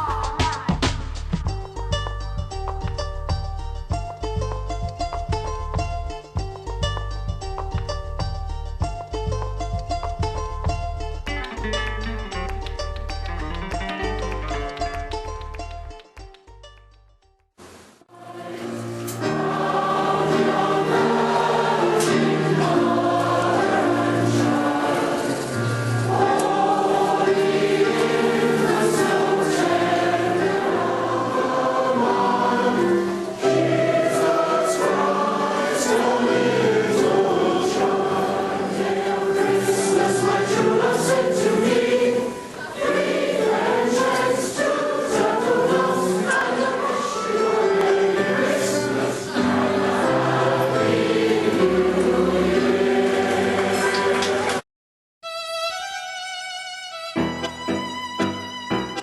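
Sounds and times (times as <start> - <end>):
choir singing: 18.1 - 54.6.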